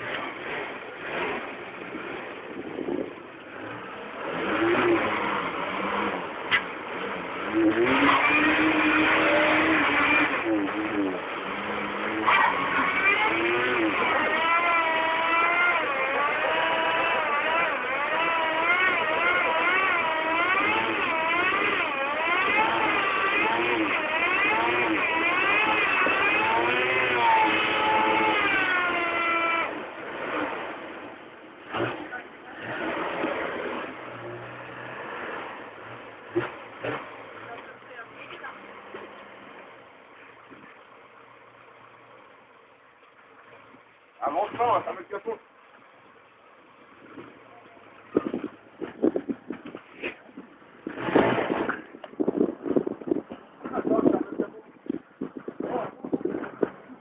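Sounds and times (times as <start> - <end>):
car engine revving: 0.0 - 41.0, 43.4 - 57.0
wheel spinning in snow: 7.5 - 31.9.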